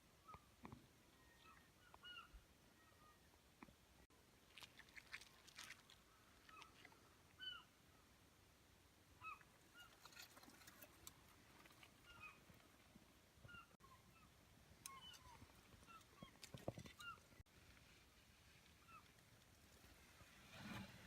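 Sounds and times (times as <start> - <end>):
faint short bird calls: 0.2 - 3.3, 6.0 - 8.1
light crackles: 4.4 - 7.4.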